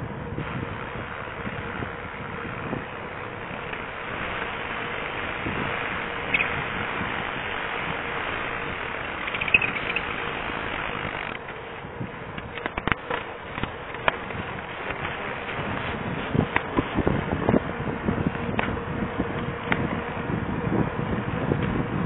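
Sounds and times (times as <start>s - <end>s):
bicycle tyre noise: 0.0s - 22.0s
wind on microphone: 0.0s - 22.0s
short high squeaks: 6.2s - 6.6s, 9.0s - 11.4s.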